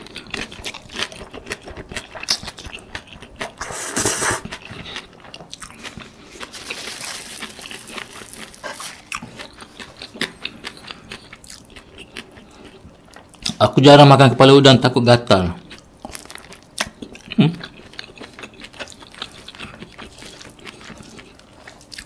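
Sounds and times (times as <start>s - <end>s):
tissue rustling: 6.5s - 9.0s.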